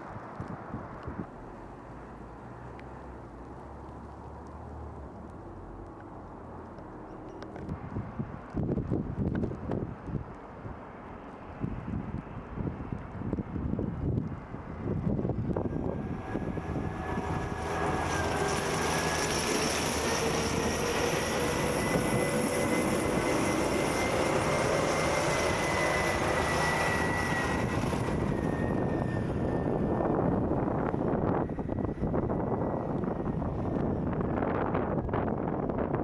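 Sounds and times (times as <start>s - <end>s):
steady rushing noise: 5.0s - 36.0s
passing engine: 14.6s - 34.6s.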